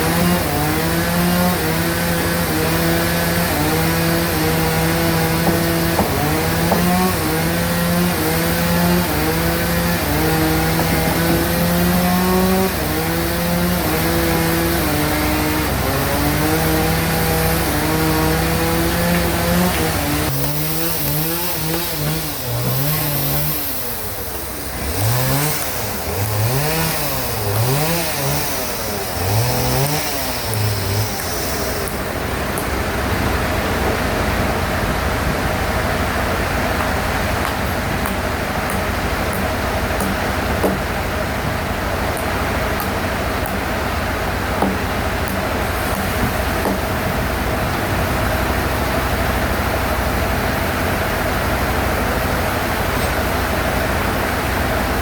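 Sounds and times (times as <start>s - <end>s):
bandsaw cutting log: 0.0s - 55.0s
drive engine running: 0.0s - 55.0s
low motor hum: 0.0s - 55.0s.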